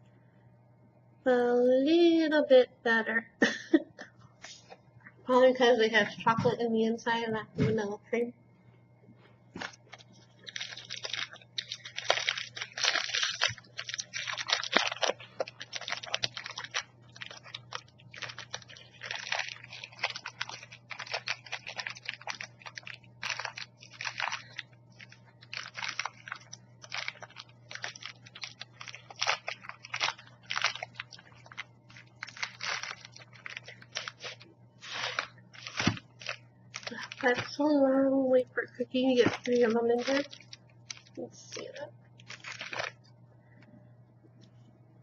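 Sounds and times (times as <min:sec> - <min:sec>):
low steady hum: 0:00.0 - 0:45.0
plastic wrapper crinkling: 0:09.6 - 0:43.6.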